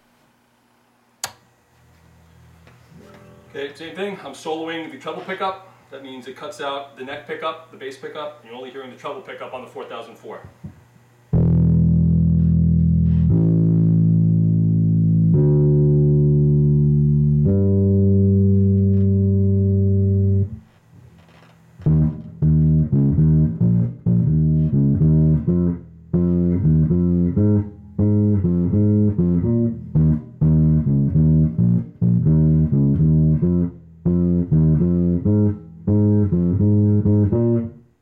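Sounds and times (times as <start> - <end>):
electric bass held note: 11.3 - 20.7, 21.8 - 37.8
plucked bass riff: 11.3 - 20.7, 21.8 - 37.9.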